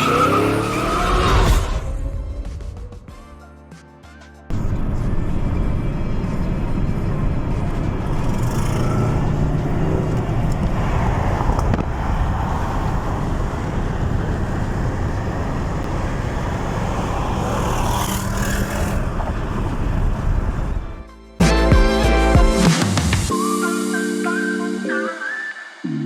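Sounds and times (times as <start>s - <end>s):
road noise: 0.0s - 2.0s, 4.5s - 21.1s.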